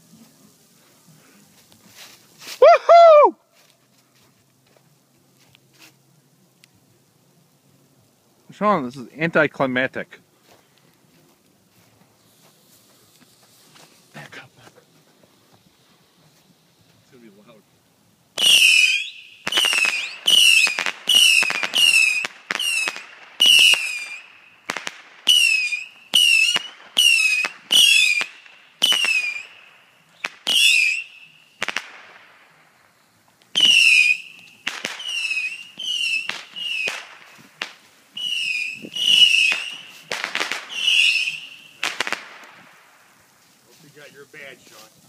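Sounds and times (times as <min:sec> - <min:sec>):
whistling fireworks shots: 0:18.4 - 0:43.4.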